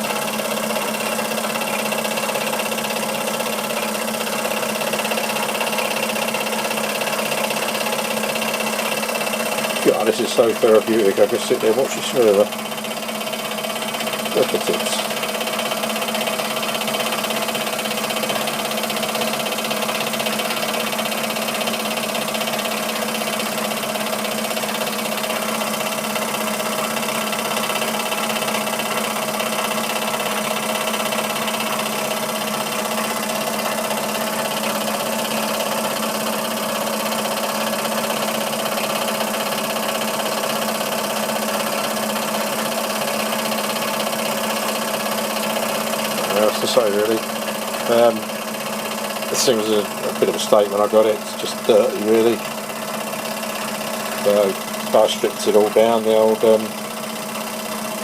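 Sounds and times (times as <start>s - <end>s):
model steam engine mechanical hum: 0.0s - 58.0s.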